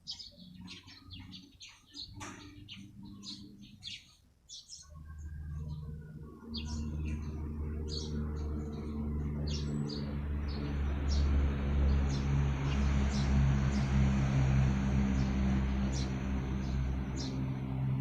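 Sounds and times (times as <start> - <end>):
small birds chirping: 0.0 - 18.0
low engine hum: 4.8 - 18.0.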